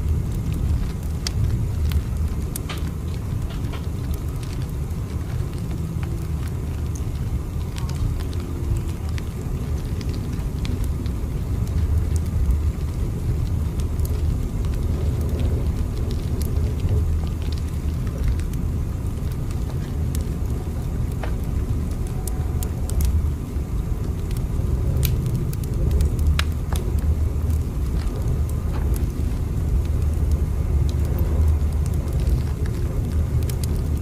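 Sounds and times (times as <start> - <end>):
train rumbling: 0.0 - 33.8.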